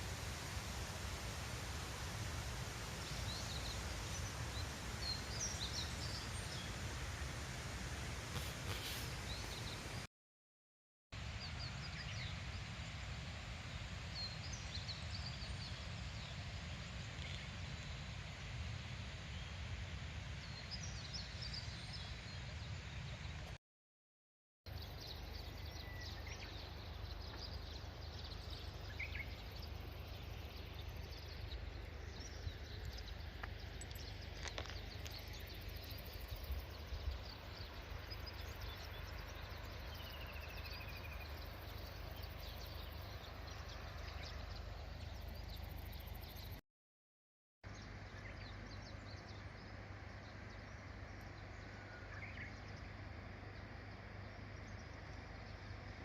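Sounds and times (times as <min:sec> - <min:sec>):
steady rushing hiss: 0:00.0 - 0:10.1, 0:24.7 - 0:46.6.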